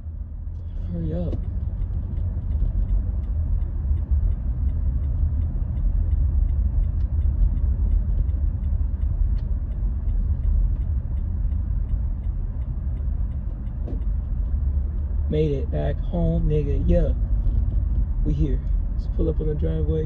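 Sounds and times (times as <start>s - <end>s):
engine and tyre rumble: 0.0s - 20.0s
light regular ticking: 0.0s - 20.0s.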